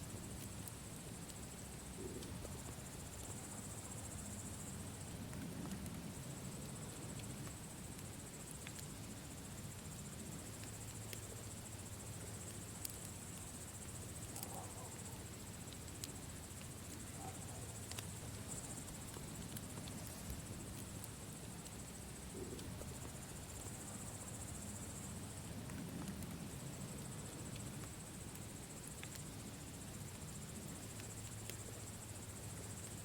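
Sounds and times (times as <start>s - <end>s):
campfire pops: 4.5s - 11.4s, 12.4s - 24.2s, 25.0s - 29.3s.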